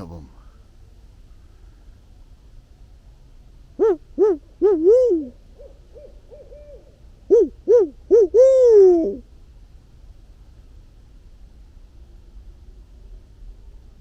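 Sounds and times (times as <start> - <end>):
fainter higher owl hoots: 3.8 - 9.3
owl hooting: 3.8 - 9.3.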